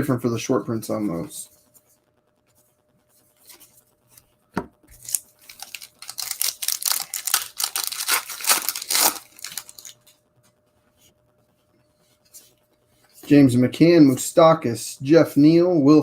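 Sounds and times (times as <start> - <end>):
wrapper tearing and crinkling: 5.0 - 10.0.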